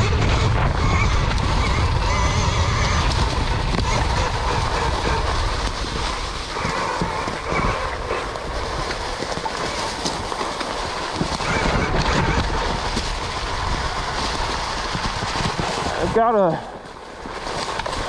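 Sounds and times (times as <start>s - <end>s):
wind: 0.0s - 18.0s.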